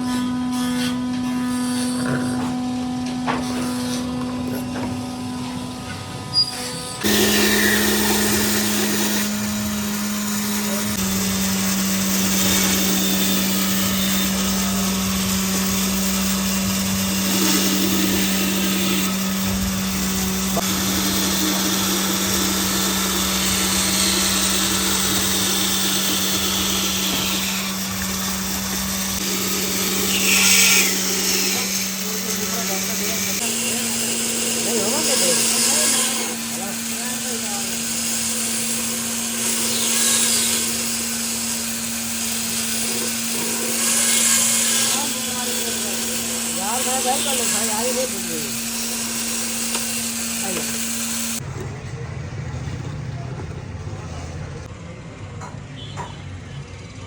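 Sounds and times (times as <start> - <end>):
electric power tool humming: 0.0 - 51.4.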